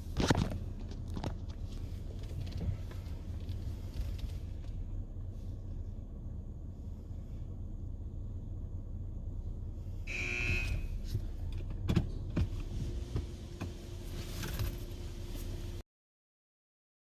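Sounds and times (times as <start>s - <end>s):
car wash machinery rumble: 0.0s - 15.8s
high buzzer tone: 10.1s - 11.0s.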